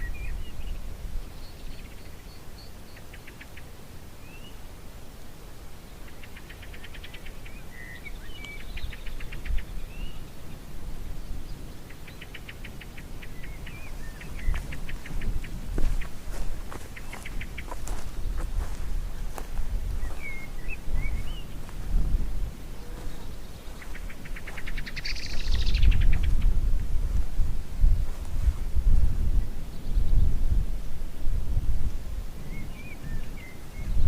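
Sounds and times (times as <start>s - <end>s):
bird rapid dry trills: 5.9s - 26.8s
constant low rumble: 6.9s - 32.9s.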